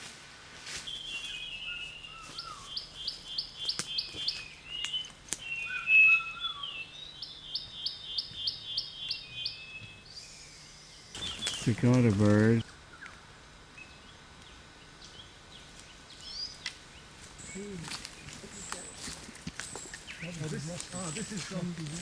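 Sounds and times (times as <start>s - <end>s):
birds whistled calls: 0.8s - 11.9s, 17.4s - 22.0s.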